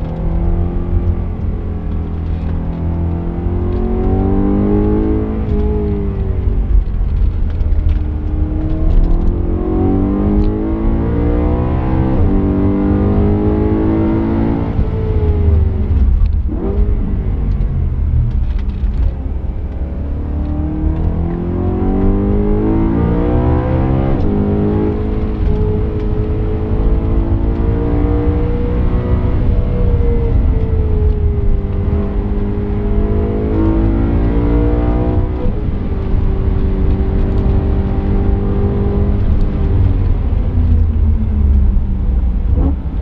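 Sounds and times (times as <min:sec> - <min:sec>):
car engine revving: 0:00.0 - 0:43.0
road and wind rumble: 0:00.0 - 0:43.0.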